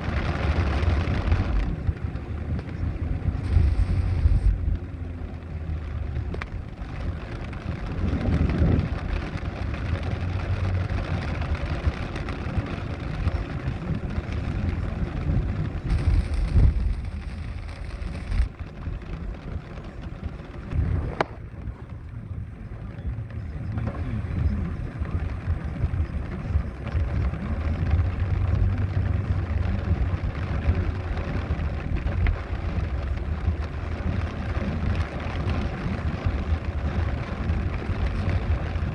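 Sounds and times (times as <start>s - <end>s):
traffic rumble: 0.0s - 38.9s
rain hiss: 3.2s - 5.1s, 7.0s - 18.8s.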